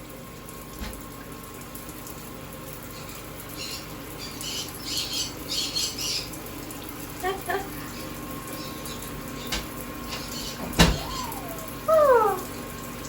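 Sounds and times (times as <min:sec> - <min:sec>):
low room hum: 0:00.0 - 0:13.0
parrot squawking: 0:10.3 - 0:12.5.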